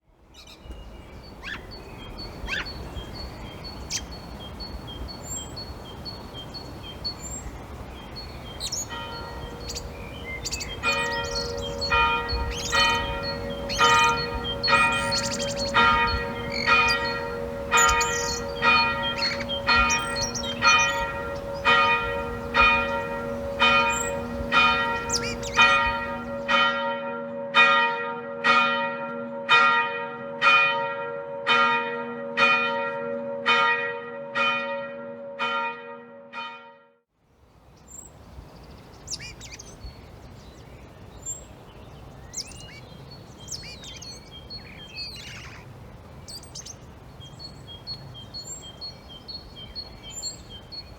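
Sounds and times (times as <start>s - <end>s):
faint bird chirping: 0.3s - 26.6s, 37.5s - 50.9s
church bell tolling: 8.8s - 36.8s.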